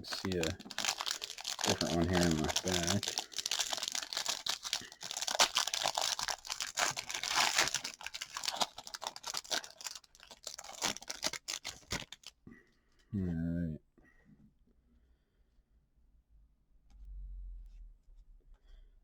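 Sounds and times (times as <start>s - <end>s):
wrapper crinkling and tearing: 0.0s - 12.3s.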